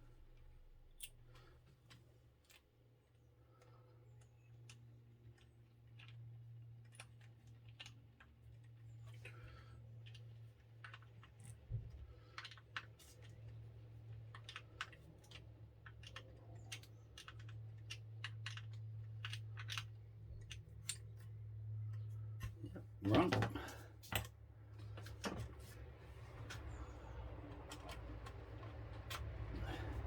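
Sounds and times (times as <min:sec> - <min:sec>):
clicking of small plastic parts: 0:03.6 - 0:22.6.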